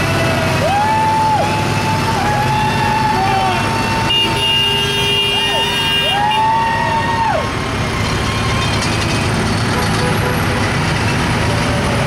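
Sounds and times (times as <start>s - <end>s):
tractor and truck engines rumbling: 0.0s - 12.0s
vehicle horn blast: 4.1s - 6.4s.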